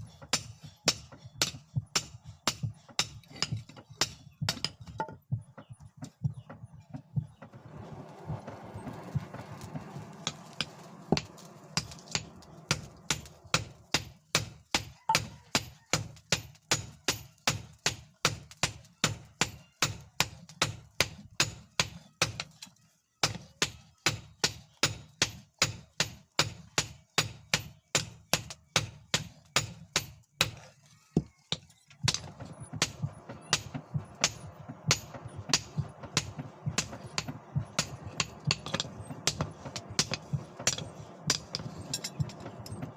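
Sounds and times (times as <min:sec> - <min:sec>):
hammer striking steel on anvil: 0:00.3 - 0:04.9, 0:10.2 - 0:22.5, 0:23.2 - 0:30.6, 0:31.5 - 0:42.9
steady low hum: 0:32.0 - 0:42.9.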